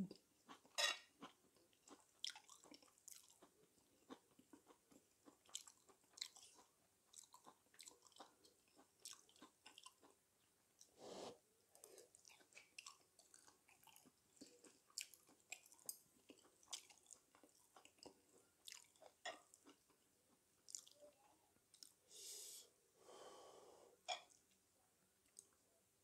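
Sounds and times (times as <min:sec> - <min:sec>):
wet chewing and mouth clicks: 0:00.1 - 0:10.9, 0:11.7 - 0:22.0
breathing in and out: 0:22.1 - 0:24.0.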